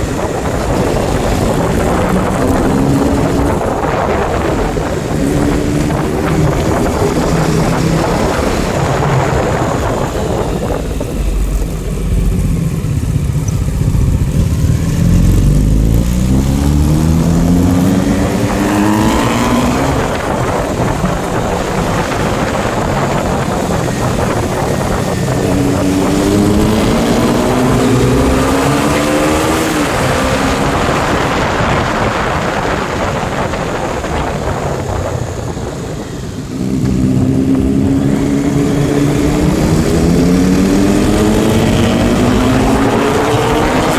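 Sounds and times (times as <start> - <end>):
motorcycle engines accelerating: 0.0 - 43.9.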